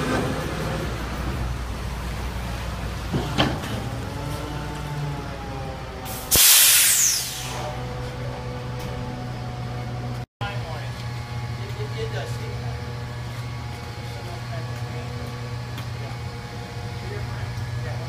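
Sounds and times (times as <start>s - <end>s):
truck engine humming: 0.0s - 18.0s
air hiss burst: 6.1s - 7.7s.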